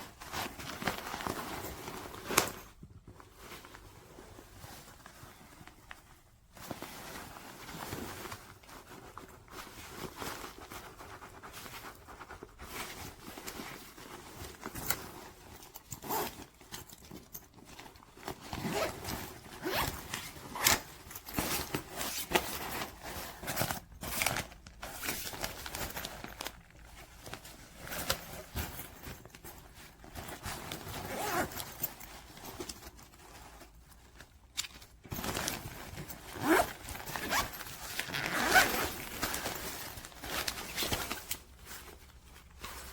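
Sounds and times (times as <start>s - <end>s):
fabric rustling: 0.0s - 42.9s
backpack zippers opening and closing: 15.9s - 16.4s, 18.6s - 19.0s, 19.6s - 20.9s, 31.0s - 31.7s, 36.4s - 39.2s.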